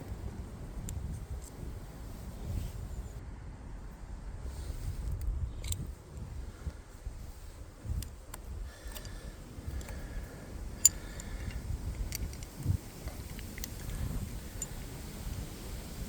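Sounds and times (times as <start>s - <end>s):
light clicks and ticks: 8.0s - 10.2s, 10.8s - 14.8s.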